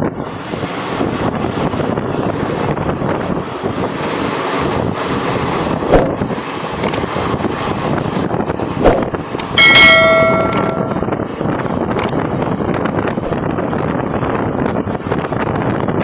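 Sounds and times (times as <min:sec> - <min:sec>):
train rumbling: 0:00.0 - 0:16.0
wind buffeting microphone: 0:00.0 - 0:16.0
metallic bell-like ring: 0:09.6 - 0:11.1
sharp clicks: 0:12.0 - 0:12.2.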